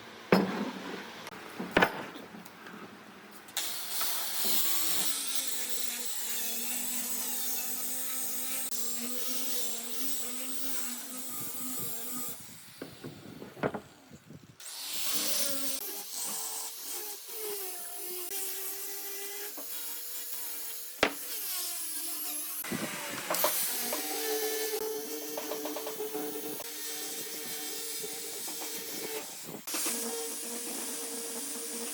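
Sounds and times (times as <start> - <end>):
tool scraping wood: 12.8 - 14.0, 21.0 - 21.4.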